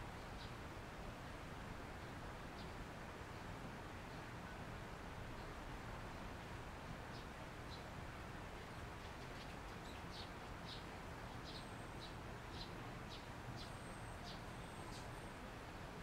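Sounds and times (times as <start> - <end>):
faint steady hiss: 0.0 - 16.0
small bird chirping: 9.0 - 15.3.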